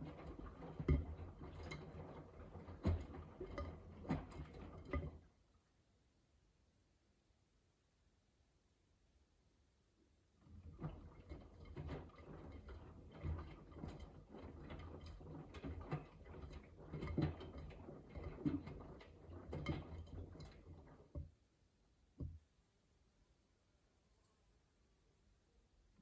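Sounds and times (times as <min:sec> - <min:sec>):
laundry tumbling and splashing: 0:00.0 - 0:05.2, 0:10.5 - 0:21.1
soft knocks and patter: 0:00.0 - 0:05.3, 0:10.4 - 0:21.4.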